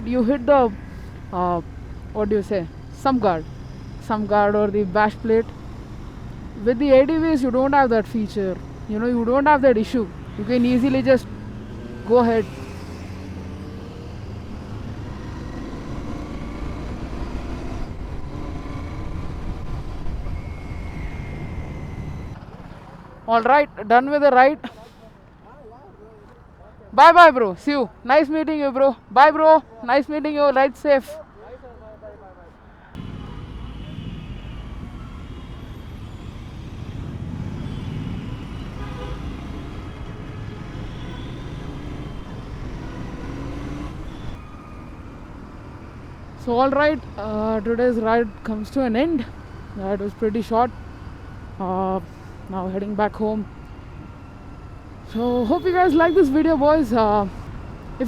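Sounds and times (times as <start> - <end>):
motorcycle engine and road noise: 0.0 - 24.3, 32.6 - 58.0
vehicle horns tooting: 37.5 - 44.5, 55.0 - 57.2.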